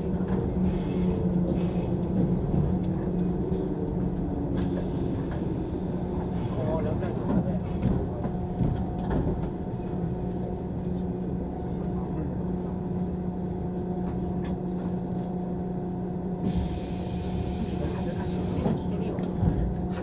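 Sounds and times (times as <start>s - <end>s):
train running hum and rumble: 0.0s - 20.0s.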